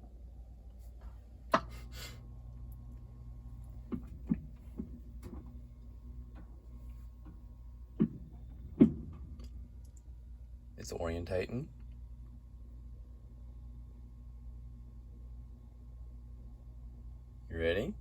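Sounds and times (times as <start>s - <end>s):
faint steady hum: 0.0s - 18.0s
washing machine clicks and knocks: 8.0s - 9.5s.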